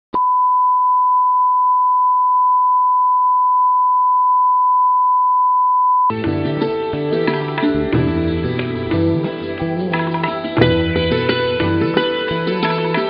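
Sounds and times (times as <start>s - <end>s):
steady test tone beep: 0.1s - 6.1s
instrumental music: 6.1s - 13.0s.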